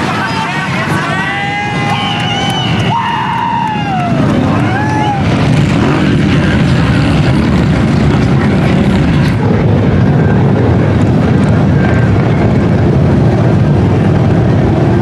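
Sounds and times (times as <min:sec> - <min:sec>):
truck engines droning: 0:00.0 - 0:15.0.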